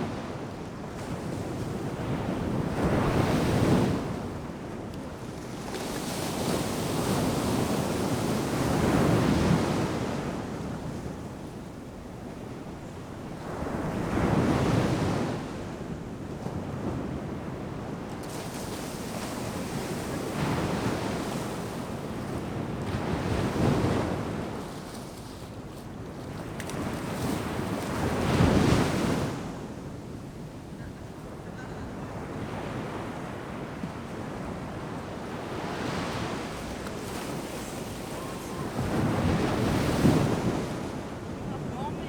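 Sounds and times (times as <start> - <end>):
ocean surf breaking on sand: 12.5 - 15.7, 17.0 - 29.9, 30.8 - 42.0.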